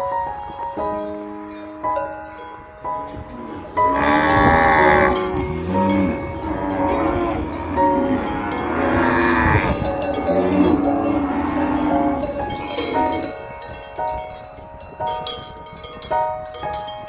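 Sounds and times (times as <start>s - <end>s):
bell-like chiming music: 0.0s - 17.0s
cow mooing: 3.3s - 13.3s.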